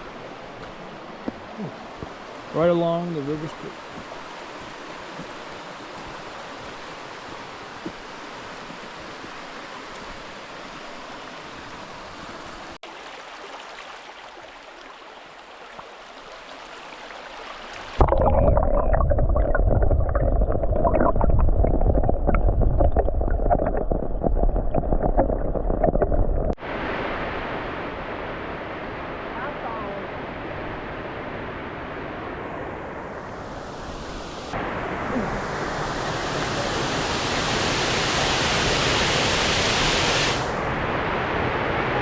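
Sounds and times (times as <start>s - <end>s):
river water rushing: 0.0s - 18.0s, 26.6s - 42.0s
muffled rumble of rushing water: 0.0s - 42.0s.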